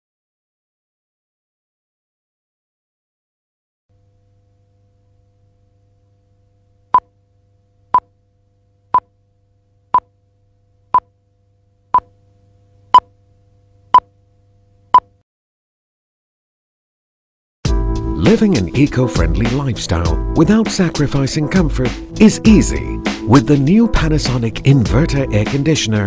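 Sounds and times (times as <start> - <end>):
faint low hum: 3.9 - 15.0.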